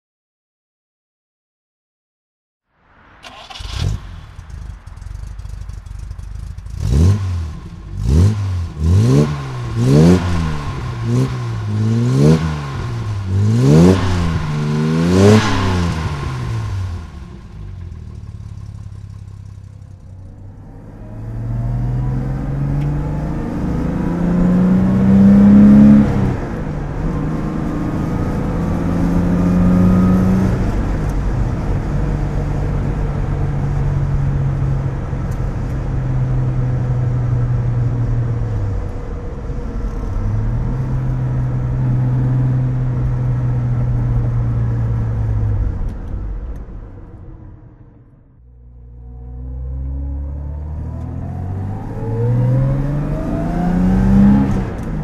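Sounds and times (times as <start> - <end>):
car engine idling: 3.2 - 20.7.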